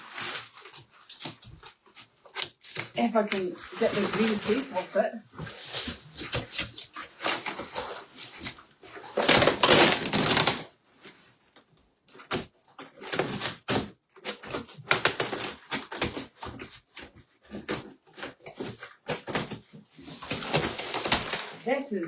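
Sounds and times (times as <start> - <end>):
cardboard crackles and rustles: 0.0 - 22.0
tape ripping off cardboard: 5.7 - 10.8, 20.2 - 21.6.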